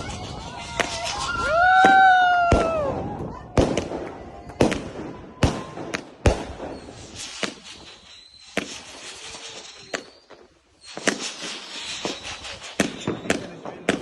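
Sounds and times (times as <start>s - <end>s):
firework bangs: 0.0s - 14.0s
firework crackling: 0.0s - 14.0s
faint high whistle: 6.7s - 13.4s.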